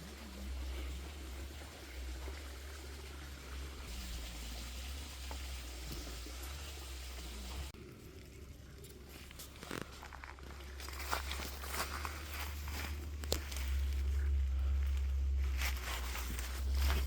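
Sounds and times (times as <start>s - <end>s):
river water running: 0.0s - 7.8s
low rumble: 0.0s - 17.0s.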